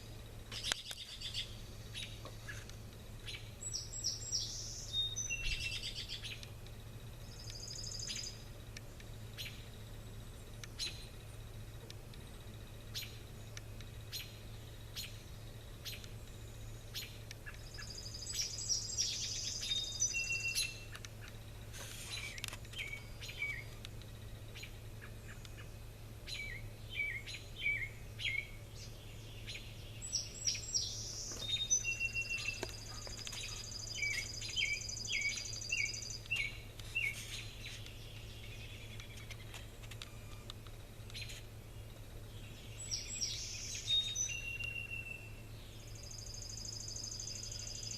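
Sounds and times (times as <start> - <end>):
small birds chirping: 0.0 - 47.9
steady low hum: 0.0 - 47.9
bird high trill: 17.7 - 20.9, 30.1 - 37.2.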